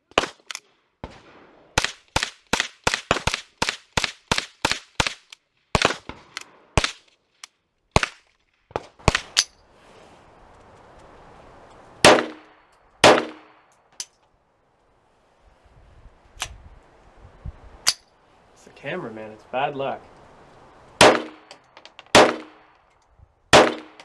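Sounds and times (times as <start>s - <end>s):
gunshots: 8.0s - 9.5s, 12.0s - 13.6s, 21.0s - 21.5s, 22.1s - 22.7s, 23.5s - 24.0s.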